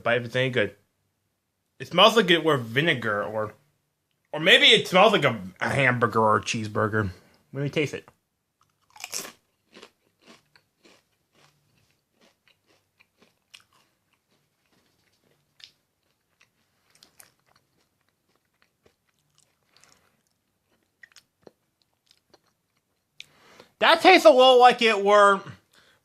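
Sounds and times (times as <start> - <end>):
chip crunching: 8.6 - 23.4
faint chewing crunches: 8.6 - 23.8.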